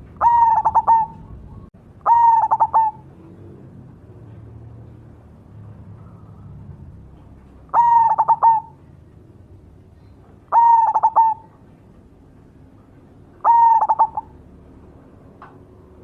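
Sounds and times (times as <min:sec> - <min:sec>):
dove cooing: 0:00.0 - 0:04.3, 0:07.7 - 0:09.0, 0:10.5 - 0:11.6, 0:13.4 - 0:14.4.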